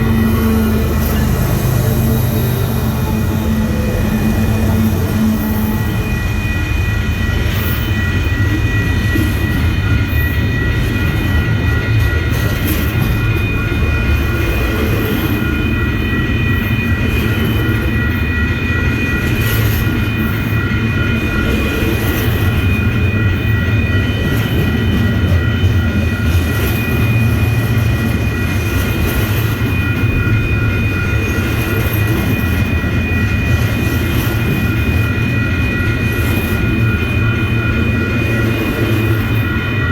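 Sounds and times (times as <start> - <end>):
train rumbling on rails: 0.0 - 39.9.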